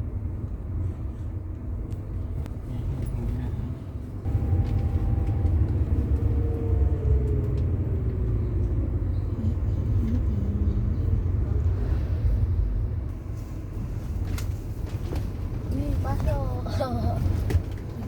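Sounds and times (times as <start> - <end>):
vehicle road rumble: 0.0 - 18.0
faint whine: 4.3 - 7.6.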